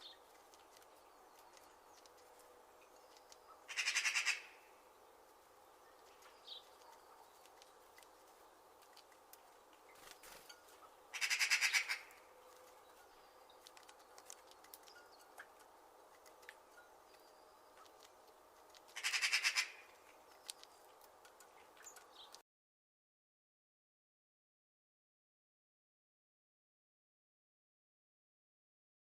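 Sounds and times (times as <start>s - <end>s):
bird rattling call: 3.7s - 4.6s, 11.1s - 12.2s, 18.9s - 19.9s.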